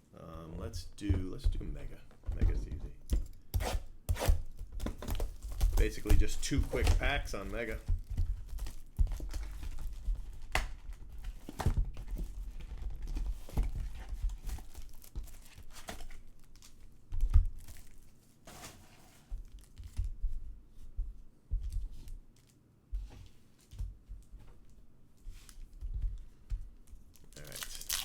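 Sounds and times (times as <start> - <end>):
foil packs tearing and crinkling: 4.2 - 7.8, 27.2 - 28.0.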